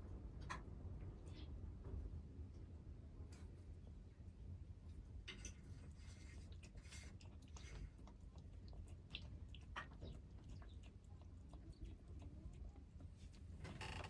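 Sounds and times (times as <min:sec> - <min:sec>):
kittens chewing: 0:03.7 - 0:14.0.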